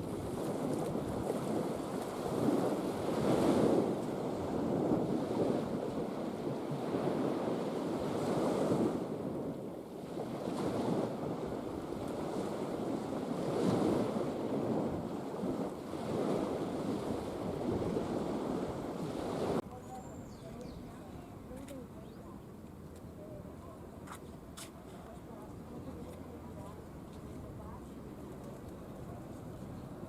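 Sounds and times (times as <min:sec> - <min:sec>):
sea waves washing in: 0:00.0 - 0:19.6
wind rumbling on microphone: 0:00.0 - 0:30.0.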